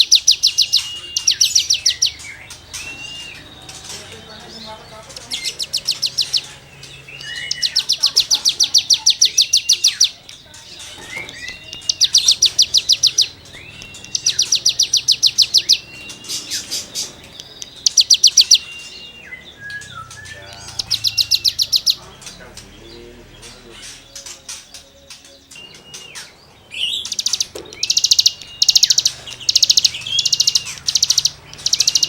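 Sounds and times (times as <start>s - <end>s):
bird slurred whistles: 0.0s - 3.5s
songbird rasping trills: 0.0s - 32.0s.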